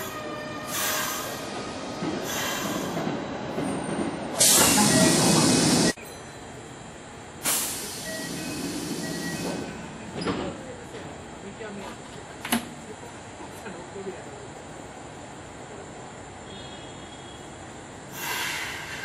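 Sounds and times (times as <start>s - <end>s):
electric train rolling to a stop: 0.0s - 11.0s, 18.1s - 19.0s
compressed-air brake hiss: 4.4s - 5.9s, 7.4s - 9.7s, 18.1s - 19.0s.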